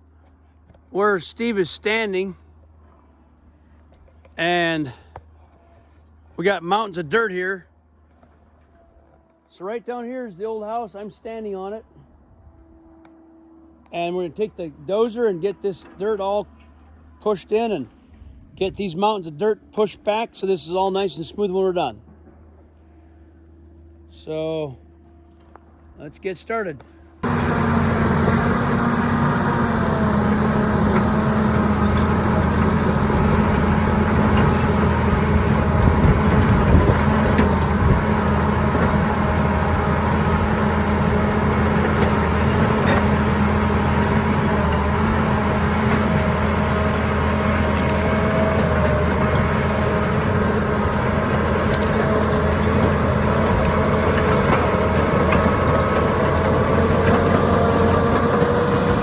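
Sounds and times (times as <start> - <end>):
diesel engine under load: 26.8 - 59.0.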